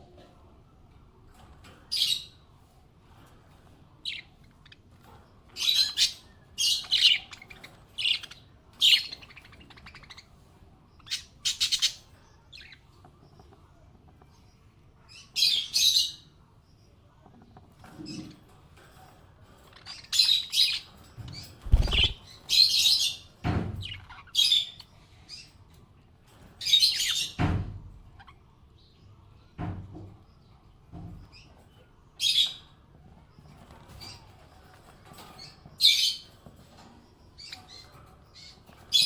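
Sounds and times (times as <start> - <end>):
parrots chirping: 5.5 - 10.4, 11.0 - 12.8, 19.7 - 20.9, 21.6 - 24.9.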